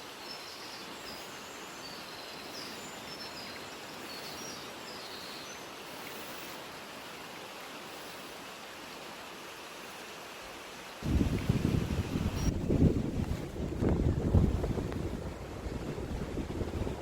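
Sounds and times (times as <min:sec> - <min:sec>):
rushing mountain ambience: 0:00.0 - 0:17.0
wind buffeting microphone: 0:11.0 - 0:17.0.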